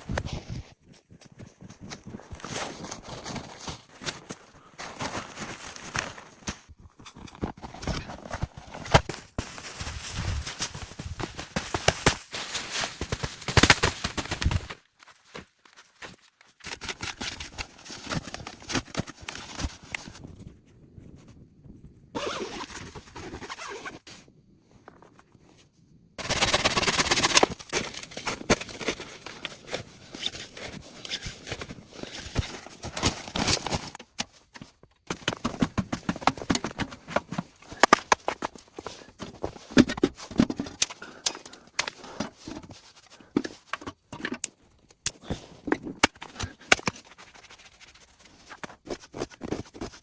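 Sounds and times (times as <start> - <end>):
crunching and knocking in snow: 0.0 - 24.1, 26.2 - 41.2.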